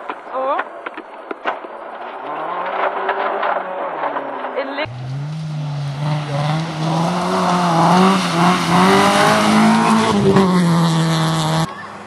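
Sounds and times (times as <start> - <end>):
rally car engine running hard: 4.9 - 11.8.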